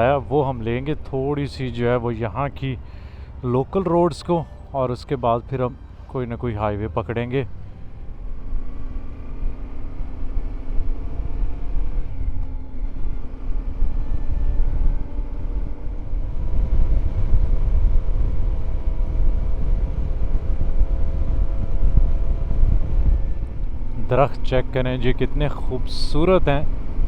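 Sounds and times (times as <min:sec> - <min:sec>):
motorcycle engine riding: 0:07.3 - 0:27.0.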